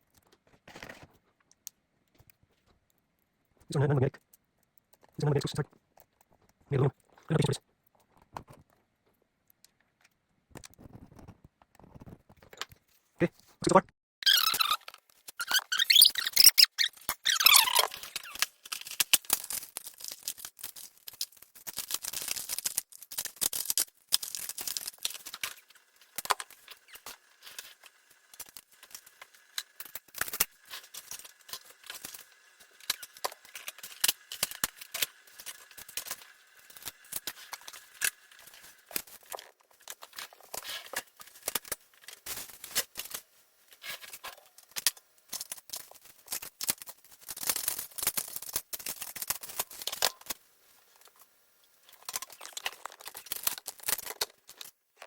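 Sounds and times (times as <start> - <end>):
tools clicking and scraping on laptop parts: 14.8 - 43.1.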